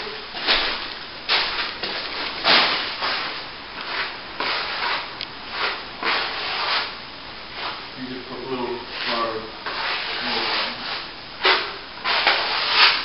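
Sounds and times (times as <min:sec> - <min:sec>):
trowel scraping plaster: 0:09.0 - 0:13.0.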